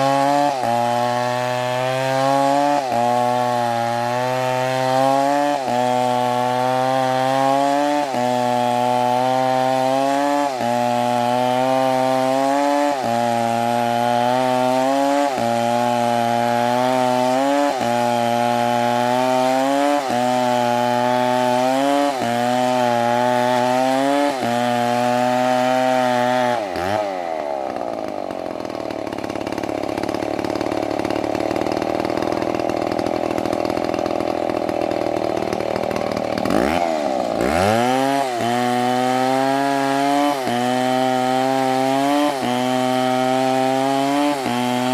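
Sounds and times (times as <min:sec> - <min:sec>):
chainsaw engine running: 0:00.0 - 0:44.9.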